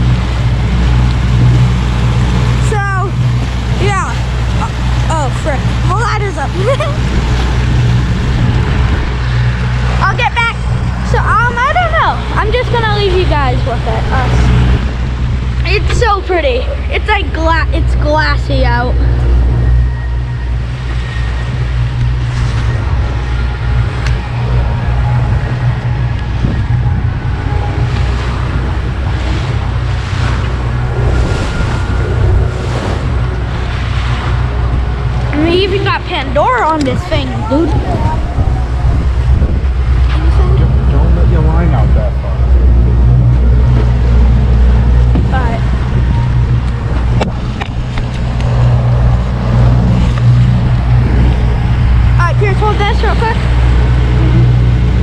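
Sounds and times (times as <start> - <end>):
boat motor humming: 0.0 - 55.0
water rushing past hull: 0.0 - 55.0
wind buffeting the microphone: 0.0 - 55.0.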